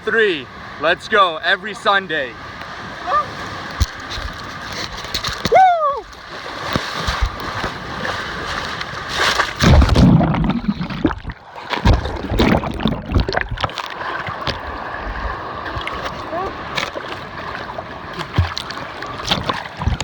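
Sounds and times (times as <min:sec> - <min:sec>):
person yelling: 0:03.0 - 0:03.3, 0:05.5 - 0:06.1
people splashing in water: 0:05.2 - 0:20.0.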